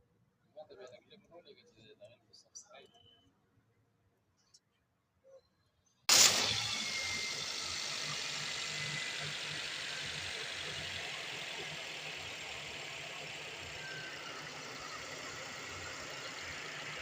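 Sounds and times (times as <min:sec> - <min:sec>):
car engine idling: 0:06.1 - 0:17.0.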